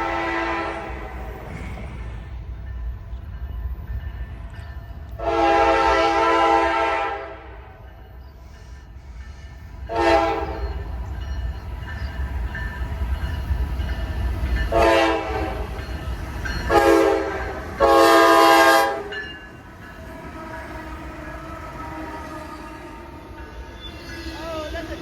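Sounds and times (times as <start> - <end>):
locomotive horn blasts: 0.0 - 1.1, 5.2 - 7.7, 9.9 - 10.8, 14.7 - 15.8, 16.7 - 19.2, 20.1 - 23.4
passing train rumble: 0.0 - 25.0.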